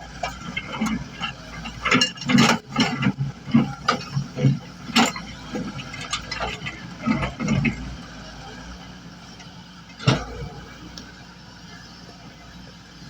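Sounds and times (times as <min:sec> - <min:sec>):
diesel engine running: 0:00.0 - 0:13.0
knocks and clatter: 0:00.2 - 0:07.8.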